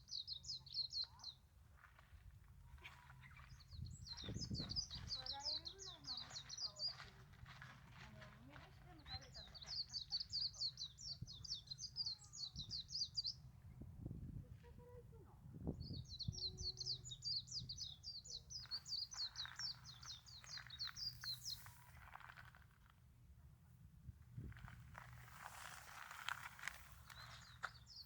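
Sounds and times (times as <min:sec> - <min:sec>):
songbird rapid high chirping: 0:00.0 - 0:01.4, 0:03.2 - 0:07.2, 0:08.9 - 0:13.4, 0:15.8 - 0:22.2, 0:25.0 - 0:28.0.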